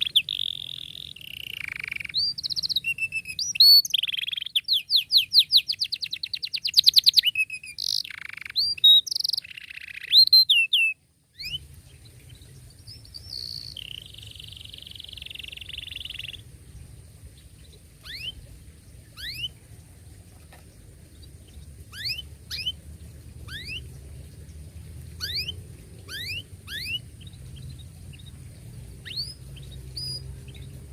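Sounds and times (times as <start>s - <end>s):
canary trilling: 0.0s - 11.6s, 13.0s - 16.5s, 18.0s - 19.6s, 21.8s - 22.8s, 23.4s - 23.9s, 25.2s - 28.4s
low hum: 11.2s - 30.9s.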